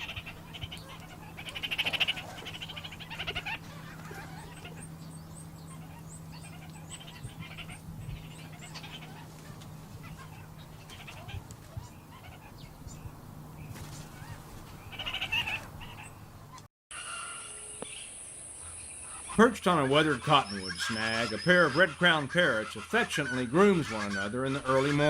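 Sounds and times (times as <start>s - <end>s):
parrots squawking: 0.0s - 13.1s, 13.7s - 17.6s, 18.6s - 25.0s
low steady hum: 0.0s - 16.6s.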